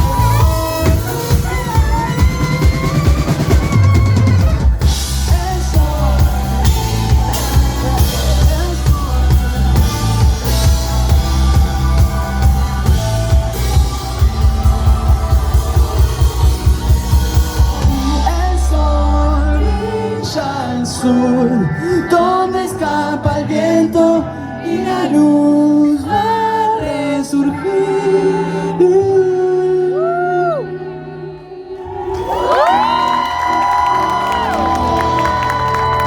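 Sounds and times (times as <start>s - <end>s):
drum kit beat: 0.0s - 19.0s
heavy bass: 0.0s - 23.5s
rock band playing: 0.0s - 23.8s, 32.4s - 36.0s.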